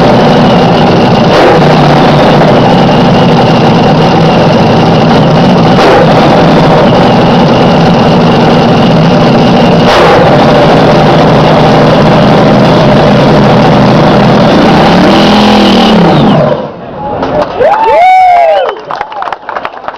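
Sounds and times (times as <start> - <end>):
dragster engine running loud: 0.0 - 16.7
sharp crack: 9.2 - 11.6.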